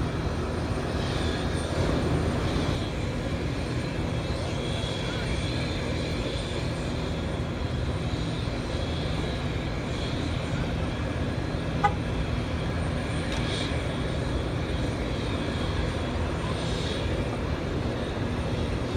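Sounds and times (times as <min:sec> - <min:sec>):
jet engines whining: 0:00.0 - 0:18.9.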